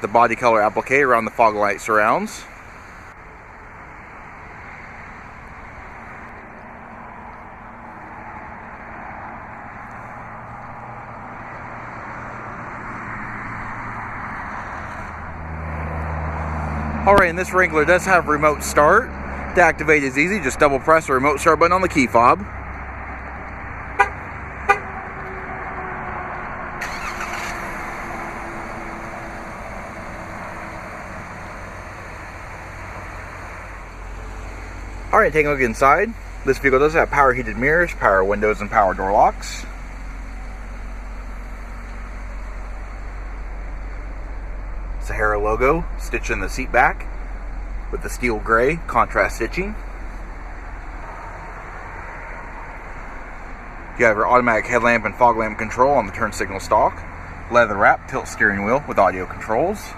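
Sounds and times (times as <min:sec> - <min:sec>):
vehicle traffic rush: 0:00.0 - 0:59.9
engine idling: 0:17.0 - 0:59.9
engine cranking and starting: 0:26.8 - 0:30.4.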